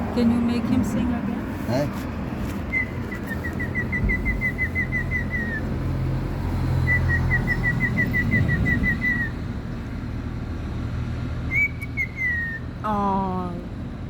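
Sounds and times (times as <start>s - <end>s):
bird whistling notes: 2.7s - 5.7s, 6.8s - 9.4s, 11.5s - 12.7s.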